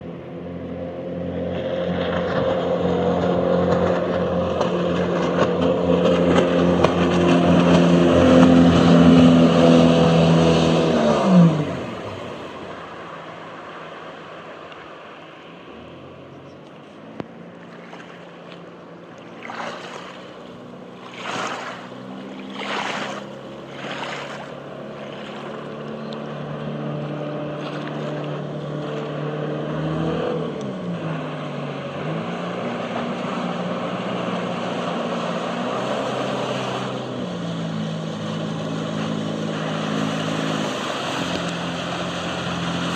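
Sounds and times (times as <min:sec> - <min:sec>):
boat engine running: 0:00.0 - 0:42.9
water splashing against hull: 0:00.0 - 0:42.9
rushing water hiss: 0:37.8 - 0:42.9.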